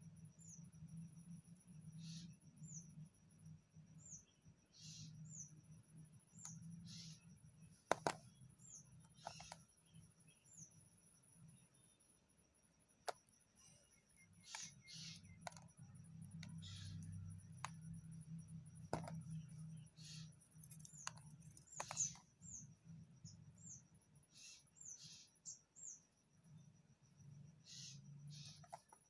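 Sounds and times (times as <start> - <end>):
small sharp clicks: 6.3 - 6.6, 7.9 - 8.3, 14.4 - 17.9, 18.9 - 19.3, 20.0 - 22.3, 28.4 - 29.0.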